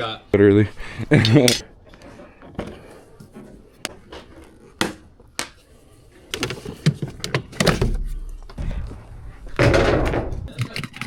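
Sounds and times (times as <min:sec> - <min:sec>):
loud heavy thump: 0:09.5 - 0:10.5
hard objects clicking and knocking: 0:09.5 - 0:11.0.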